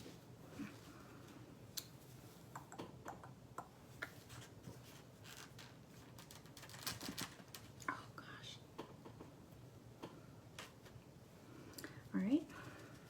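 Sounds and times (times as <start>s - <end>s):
small taps and clicks: 2.6s - 4.2s.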